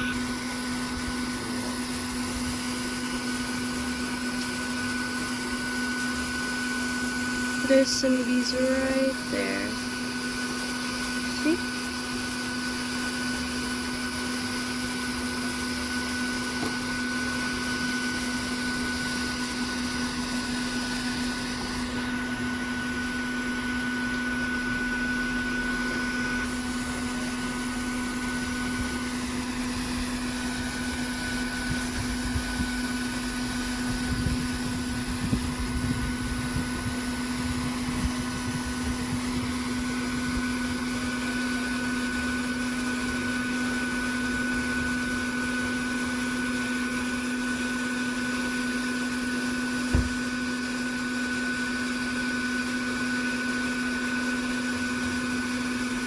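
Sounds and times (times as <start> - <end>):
vacuum cleaner humming: 0.0 - 56.0.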